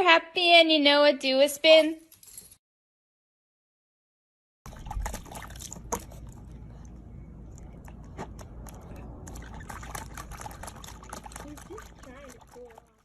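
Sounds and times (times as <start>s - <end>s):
steady low rumble: 4.7s - 12.4s
water splashing and dripping: 4.7s - 13.0s.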